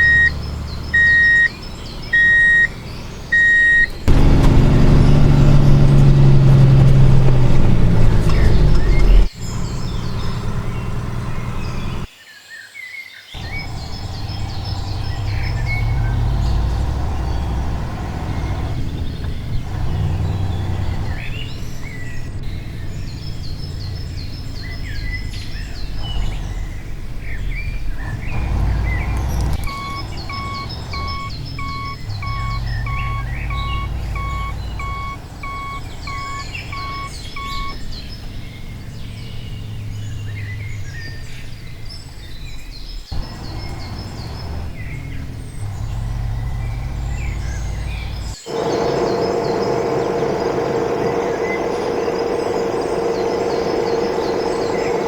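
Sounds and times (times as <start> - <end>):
electronic reversing beeps: 0.0 - 1.5, 2.1 - 4.2, 28.0 - 37.8
birds chirping: 0.0 - 55.0
low rumble: 13.4 - 42.6, 43.2 - 55.0.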